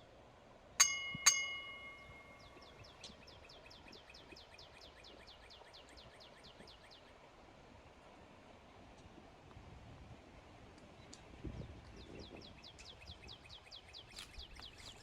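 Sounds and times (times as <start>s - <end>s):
faint outdoor background: 0.0s - 15.0s
bell-like metallic strikes: 0.8s - 2.7s.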